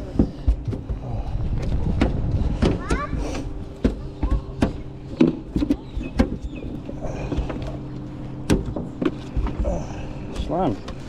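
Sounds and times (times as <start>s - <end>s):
low hum: 0.0s - 11.0s
knocks and clicks of gear: 3.8s - 11.0s.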